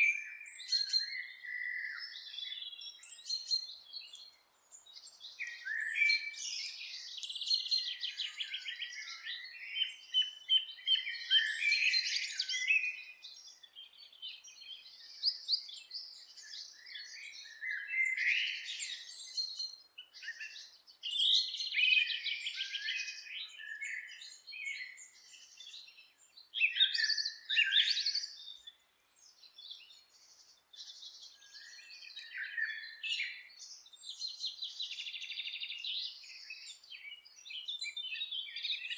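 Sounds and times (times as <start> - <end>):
birds chirping and trilling: 0.3 - 38.9.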